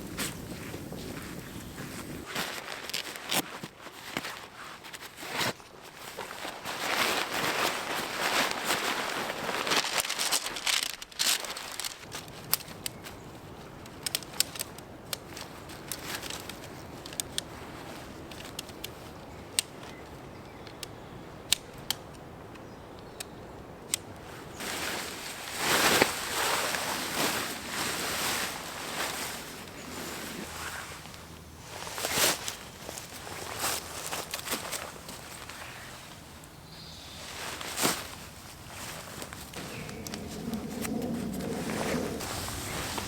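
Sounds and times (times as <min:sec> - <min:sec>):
rustling: 0:00.0 - 0:20.0, 0:23.9 - 0:43.0
sharp crackles and pops: 0:08.6 - 0:24.3.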